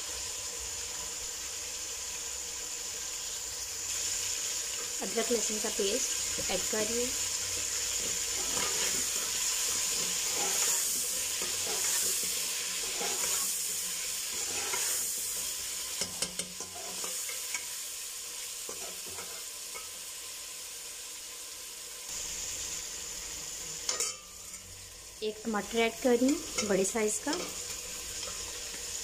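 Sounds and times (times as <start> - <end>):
chicken sizzling in oil: 0.0 - 29.0
metal spoon scraping a pot: 7.8 - 17.7.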